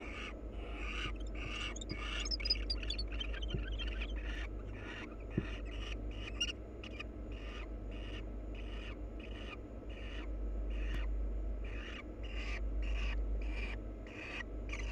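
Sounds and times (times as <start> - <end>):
owls rasping hiss calls: 0.1 - 5.1
low hum: 1.0 - 4.4
high twittering notes: 1.2 - 4.1.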